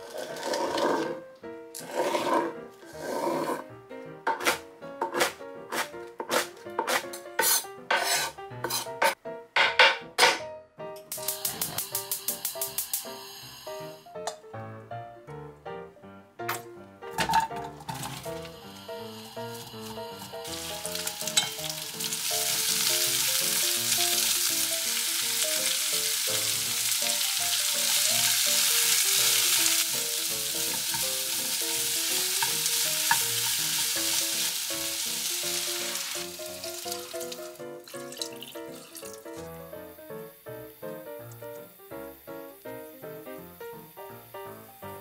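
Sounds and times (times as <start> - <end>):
light background music: 0.1 - 45.0
onions sizzling in hot oil: 7.4 - 8.9, 11.1 - 14.3, 17.2 - 45.0.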